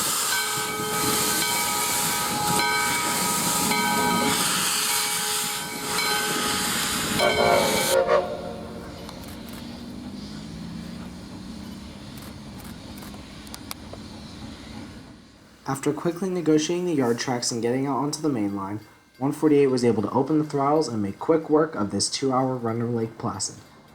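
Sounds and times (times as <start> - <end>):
steam locomotive whistle: 0.0 - 12.0
heavy steam hiss: 0.0 - 22.3.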